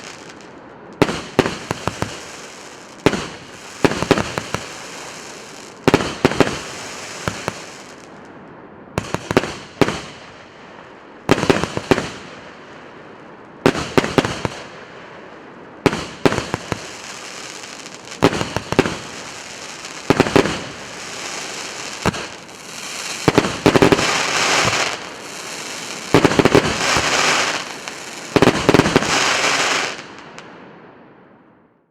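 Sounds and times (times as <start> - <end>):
fireworks bursting and crackling: 0.0 - 8.2, 9.0 - 10.5, 11.2 - 12.8, 13.6 - 30.5
firework launch shots: 22.0 - 30.1.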